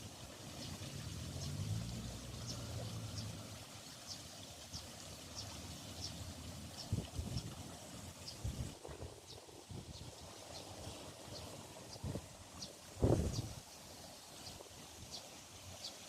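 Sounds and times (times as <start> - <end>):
fountain water splashing: 0.0 - 16.0.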